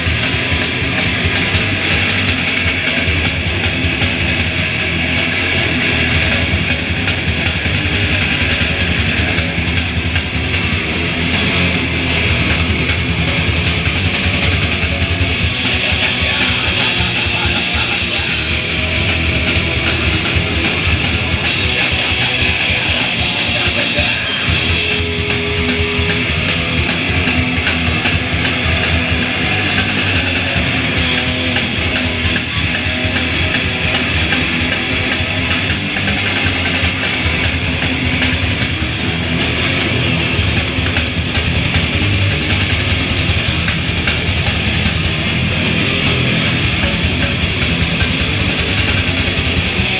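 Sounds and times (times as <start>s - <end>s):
electric guitars: 0.0s - 49.9s
rock band playing live: 0.0s - 49.9s.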